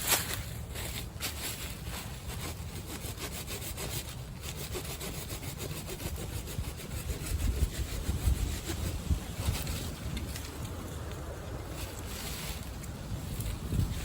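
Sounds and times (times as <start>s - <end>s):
hand saw cutting branch: 0.0s - 10.6s
wind rumble on microphone: 0.0s - 14.0s.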